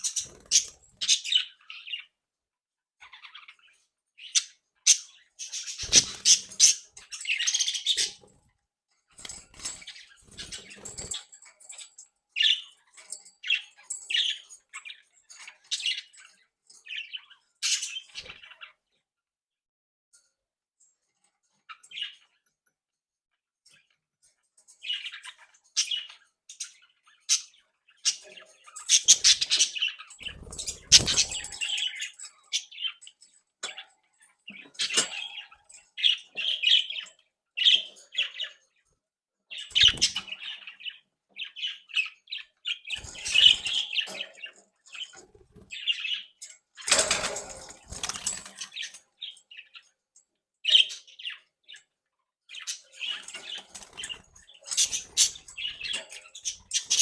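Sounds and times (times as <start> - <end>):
budgerigars chirping: 4.3 - 8.2, 25.8 - 33.0, 39.6 - 45.1
wings flapping: 30.2 - 31.6.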